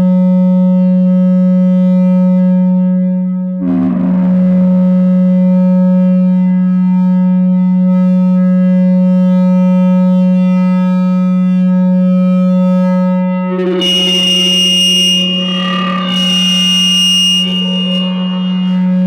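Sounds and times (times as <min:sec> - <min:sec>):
mixer feedback drone: 0:03.6 - 0:06.8, 0:10.4 - 0:19.0
high whistling tone: 0:13.6 - 0:19.0.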